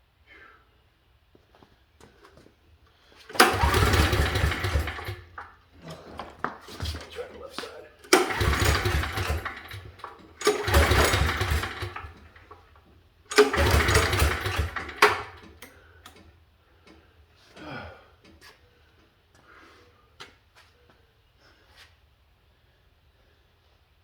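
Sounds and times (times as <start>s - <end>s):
generator engine pull-started: 3.2s - 16.3s.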